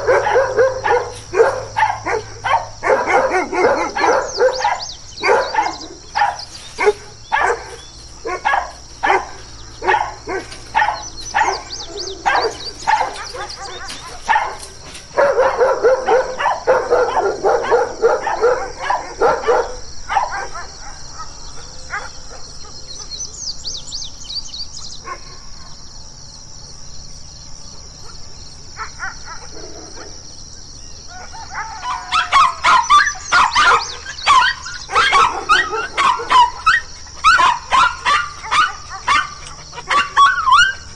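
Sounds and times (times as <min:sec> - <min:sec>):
dogs barking: 0:00.0 - 0:23.3, 0:24.9 - 0:25.8, 0:27.8 - 0:30.4, 0:31.0 - 0:40.9
small dog yapping: 0:31.6 - 0:40.9.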